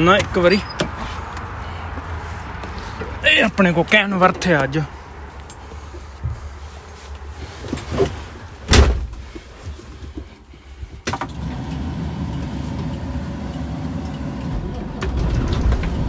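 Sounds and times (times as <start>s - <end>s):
truck cab door clunks: 0.0s - 1.2s, 7.7s - 9.5s, 12.4s - 16.0s
truck engine rumbling: 0.0s - 16.0s.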